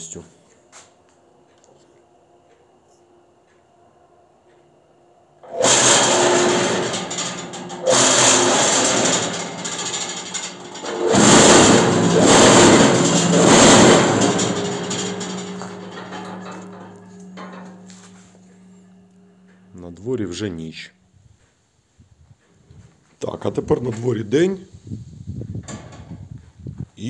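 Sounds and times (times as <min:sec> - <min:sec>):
low hum: 0:01.3 - 0:24.1
machine vibrator rattling and buzzing: 0:05.4 - 0:21.4.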